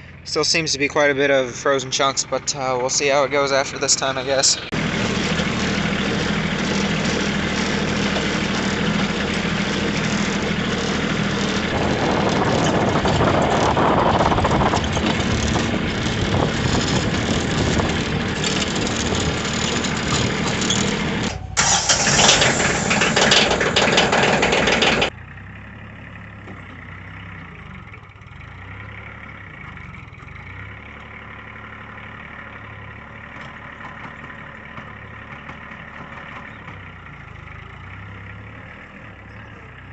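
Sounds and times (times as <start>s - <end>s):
quiet engine hum: 0.0s - 31.9s
tractor engine running: 0.0s - 39.9s.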